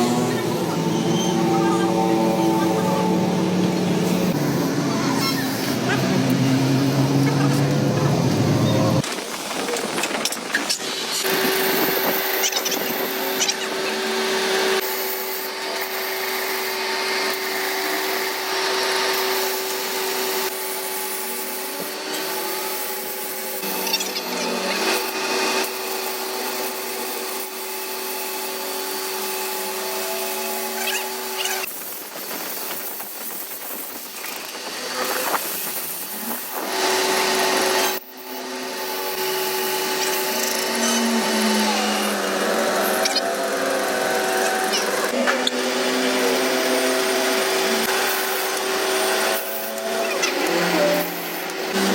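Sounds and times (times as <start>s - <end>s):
power tool humming: 0.0s - 51.9s
rough scraping: 7.5s - 13.1s.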